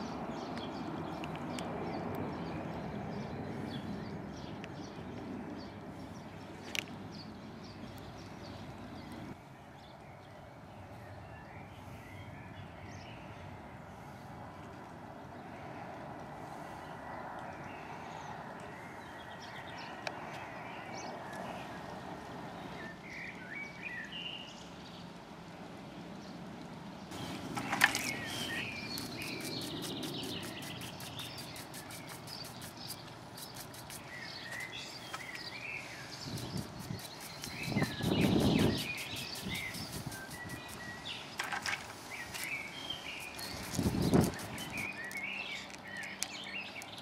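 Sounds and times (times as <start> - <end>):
birds chirping: 16.8 - 25.1, 27.0 - 47.0
steady background hum: 26.8 - 47.0
stiff brush scrubbing stone: 27.1 - 41.2, 42.4 - 45.7
even hiss: 27.1 - 45.2.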